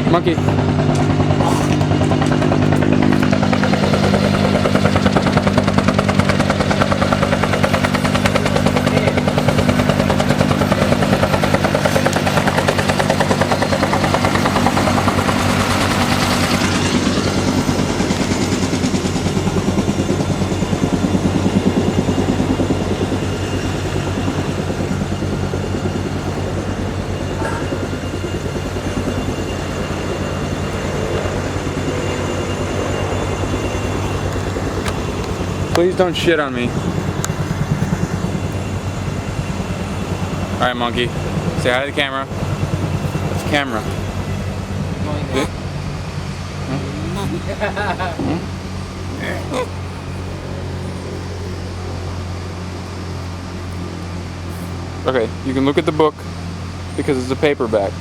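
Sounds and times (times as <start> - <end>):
engine running with pulsing beat: 0.0 - 58.0.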